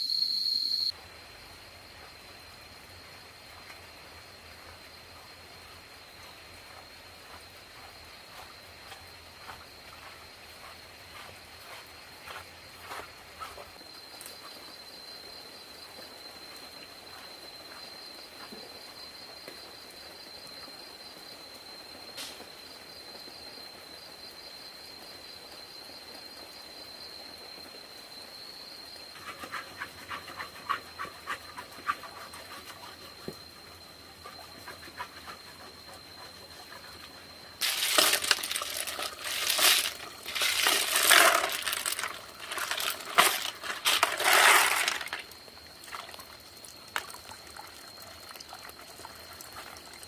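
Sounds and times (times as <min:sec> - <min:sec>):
insect trilling: 0:00.0 - 0:00.9, 0:29.1 - 0:50.0
outdoor hiss: 0:00.0 - 0:50.0.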